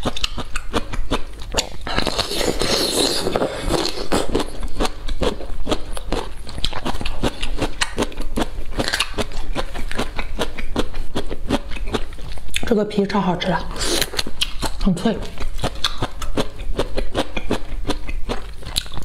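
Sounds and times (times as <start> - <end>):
crisp bite: 0.0 - 12.7
crunchy chewing: 0.0 - 12.7, 13.7 - 19.0.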